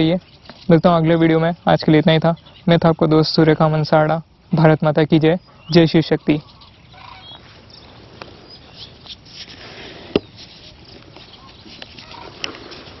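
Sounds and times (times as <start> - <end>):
outdoor background noise: 0.0 - 13.0
short bird calls: 5.3 - 13.0.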